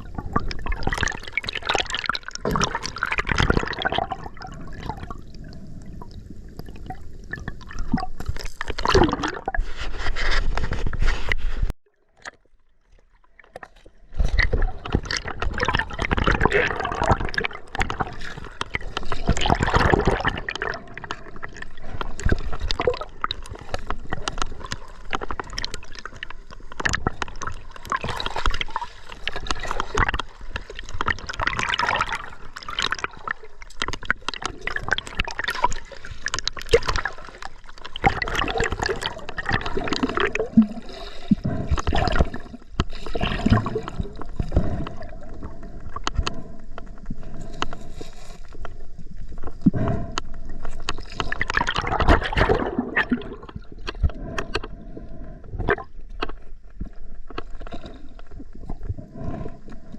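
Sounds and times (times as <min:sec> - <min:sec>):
small sharp splashes and clicks: 0:00.0 - 0:05.3, 0:06.1 - 0:09.6, 0:11.9 - 0:54.8
river water gurgling and splashing: 0:00.0 - 0:09.6, 0:13.0 - 0:46.5, 0:49.8 - 0:54.4.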